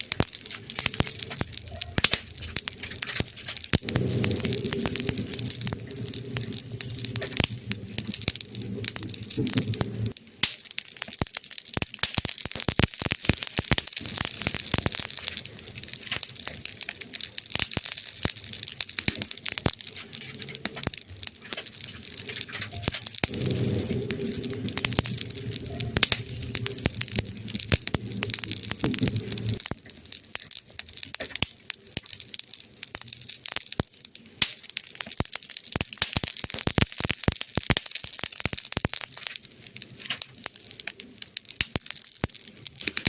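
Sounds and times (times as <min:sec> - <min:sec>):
wood fire crackling: 0:00.0 - 0:43.0
low hum: 0:03.8 - 0:10.1, 0:22.1 - 0:29.7.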